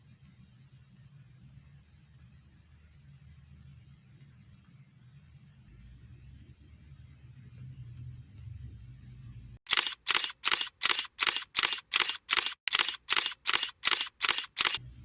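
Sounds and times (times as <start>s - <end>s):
camera shutter clicks: 9.7s - 14.8s.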